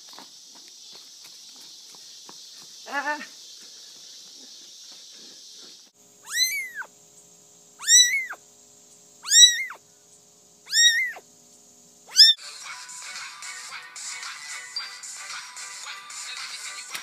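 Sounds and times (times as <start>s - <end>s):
cat meowing: 6.2s - 6.9s, 7.8s - 8.4s, 9.2s - 9.8s, 10.7s - 11.2s, 12.1s - 12.4s
music: 12.4s - 17.0s.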